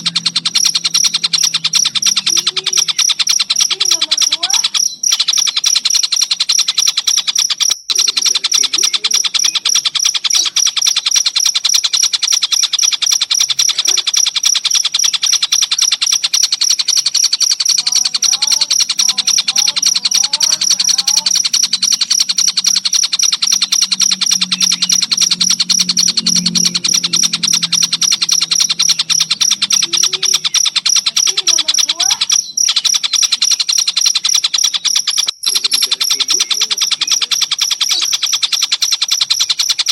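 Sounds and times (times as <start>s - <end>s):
cricket chirping trill: 0.0s - 39.9s
faint gliding bird calls: 0.0s - 39.9s
low hum: 18.9s - 31.2s.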